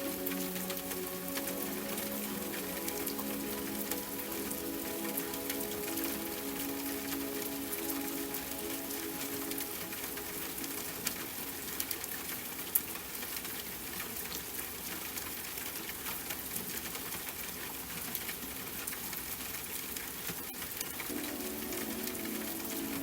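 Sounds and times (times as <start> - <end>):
soft sustained music notes: 0.0 - 12.0, 21.1 - 23.0
raindrop ticks: 0.0 - 23.0
steady rain: 0.0 - 23.0.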